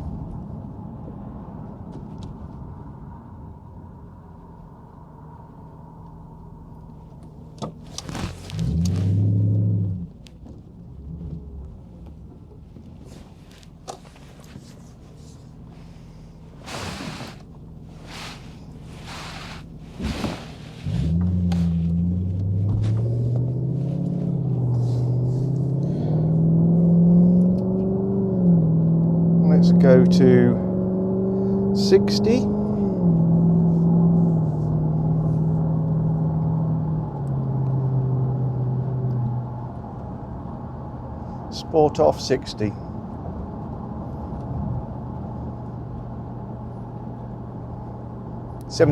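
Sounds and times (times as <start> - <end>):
car engine droning in cabin: 0.0 - 48.9
tyre and road noise: 6.3 - 48.9
vehicles whooshing past: 14.5 - 27.6.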